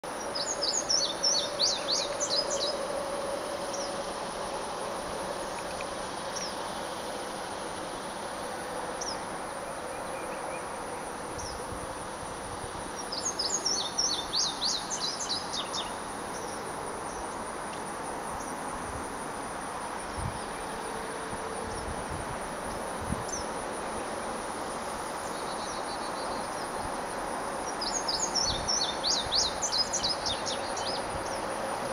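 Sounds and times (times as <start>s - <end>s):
indigo bunting singing: 0.0s - 7.2s, 7.8s - 12.0s, 12.8s - 17.5s, 25.2s - 31.9s
insects droning: 0.0s - 31.9s.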